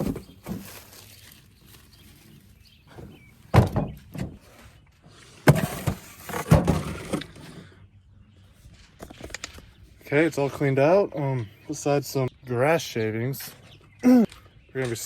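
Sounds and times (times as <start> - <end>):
thuds and knocks: 3.5 - 4.4.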